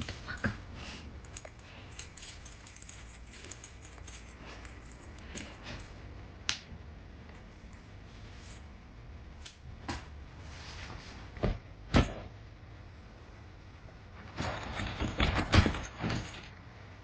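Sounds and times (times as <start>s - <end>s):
light clicks and rustles: 1.2s - 6.0s.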